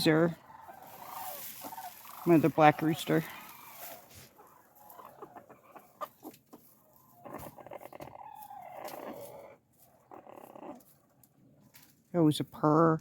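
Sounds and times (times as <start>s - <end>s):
chicken purring trill: 6.9s - 10.9s.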